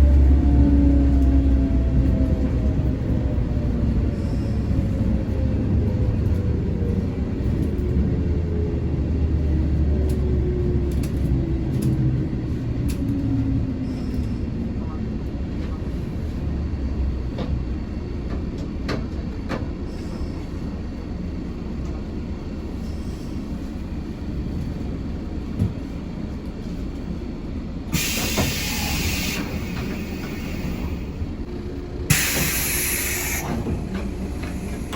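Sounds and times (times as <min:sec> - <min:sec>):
electric train rumbling: 0:00.0 - 0:34.9
loud hiss of air: 0:27.9 - 0:31.2, 0:32.1 - 0:34.9
train motor whine: 0:27.9 - 0:34.9.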